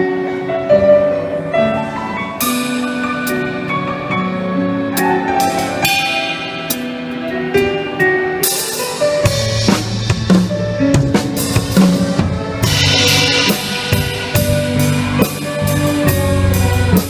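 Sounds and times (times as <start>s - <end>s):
orchestral pop music: 1.2s - 17.0s
cymbal crash: 8.9s - 15.8s.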